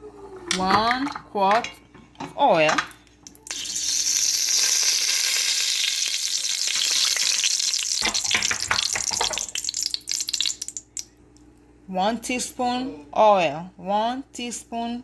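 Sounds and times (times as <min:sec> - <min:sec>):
oil sizzling in a pot: 0:03.3 - 0:11.0.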